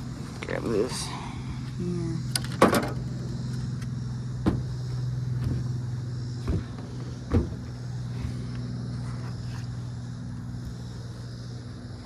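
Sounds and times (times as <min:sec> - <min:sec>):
small motor humming: 0:00.0 - 0:12.0.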